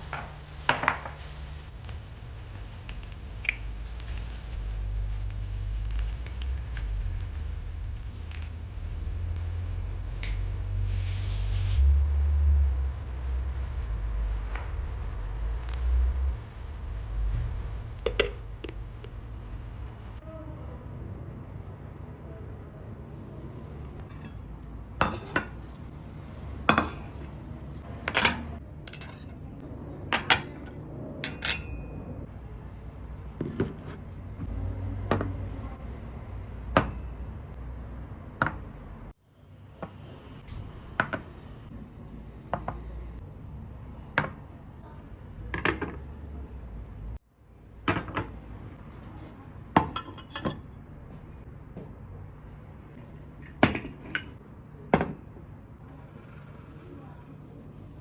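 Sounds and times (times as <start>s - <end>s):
low steady hum: 1.3s - 39.2s
dishes and cutlery clinking: 24.0s - 32.1s, 49.0s - 50.7s, 53.3s - 55.2s.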